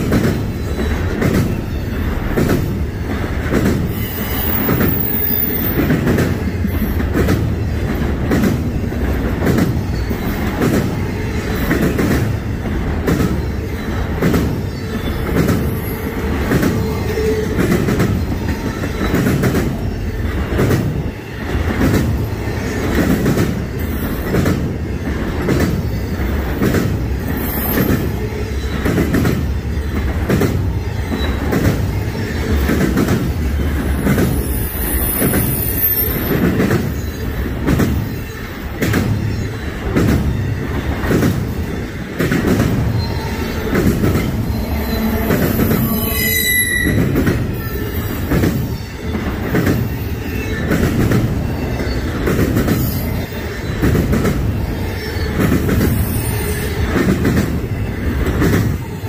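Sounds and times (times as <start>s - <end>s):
freight train wheels clicking: 0.0s - 59.0s
low train rumble: 0.0s - 59.0s
high-pitched wheel squeals: 3.9s - 5.8s, 33.5s - 37.4s, 42.9s - 53.9s.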